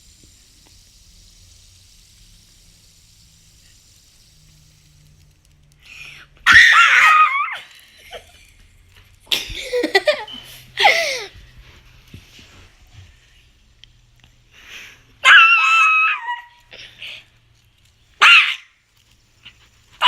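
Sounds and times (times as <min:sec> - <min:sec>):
child laughing loudly: 0:09.3 - 0:11.4.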